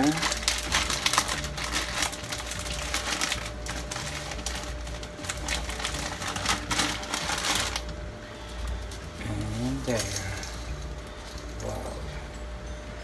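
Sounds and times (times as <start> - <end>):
dry pasta rattling in metal pot: 0.0 - 7.9.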